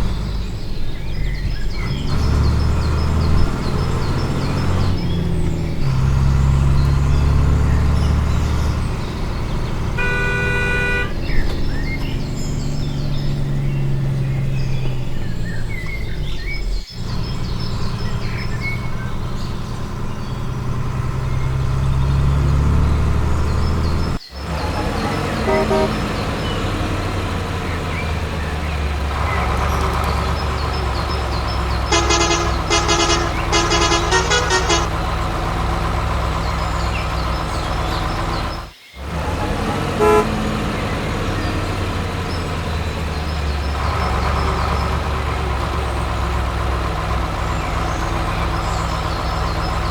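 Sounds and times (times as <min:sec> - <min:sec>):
heavy vehicle engine humming: 0:00.0 - 0:49.9
short horn toots: 0:09.8 - 0:11.4, 0:25.3 - 0:26.2, 0:31.8 - 0:35.1, 0:40.0 - 0:40.5.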